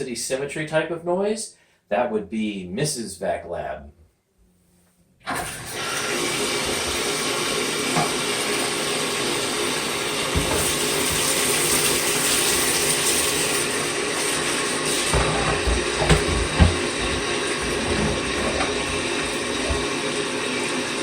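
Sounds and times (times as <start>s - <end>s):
vacuum cleaner motor whining: 5.3s - 21.0s.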